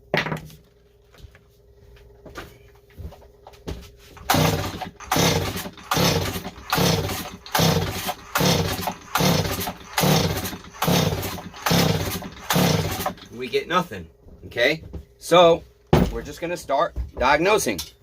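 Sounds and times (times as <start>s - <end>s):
chainsaw recoil starter pulls: 4.2s - 13.4s.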